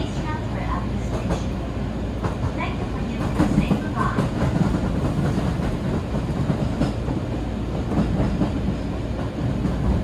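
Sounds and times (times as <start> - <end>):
train running rumble: 0.0 - 10.0.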